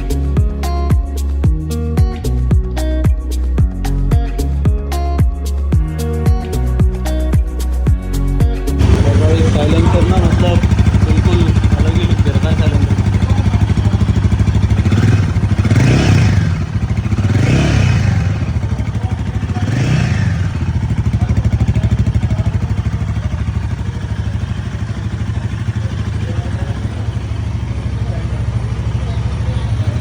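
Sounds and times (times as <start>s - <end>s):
motorcycle engine revving and idling: 8.8s - 30.0s.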